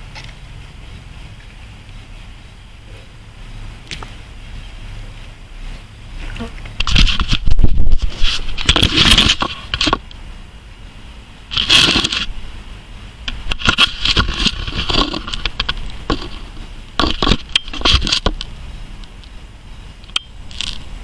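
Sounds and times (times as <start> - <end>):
handling scraping and rustling: 3.9 - 10.1, 11.5 - 12.6, 13.3 - 18.5.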